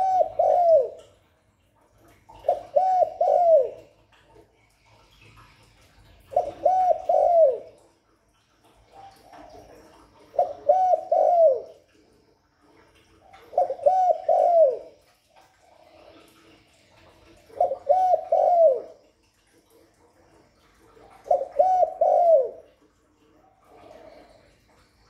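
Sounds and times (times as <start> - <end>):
dove cooing: 0.0 - 1.1, 2.4 - 3.9, 6.3 - 7.8, 9.0 - 12.0, 13.5 - 15.0, 17.5 - 19.1, 21.1 - 22.8, 23.6 - 24.8.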